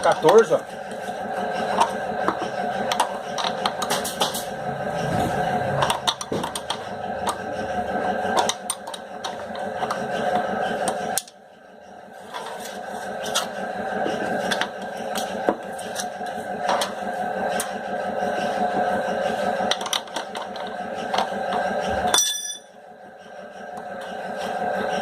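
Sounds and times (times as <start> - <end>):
steady hum: 0.0 - 25.0
sharp metallic clink: 22.2 - 22.7.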